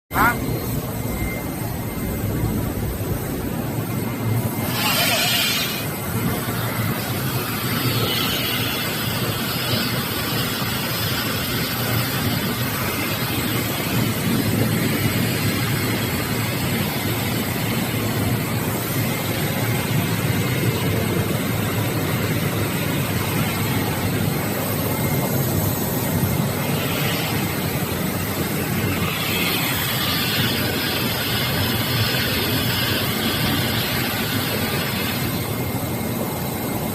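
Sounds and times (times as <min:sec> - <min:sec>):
heat pump machine drone: 0:00.1 - 0:36.9.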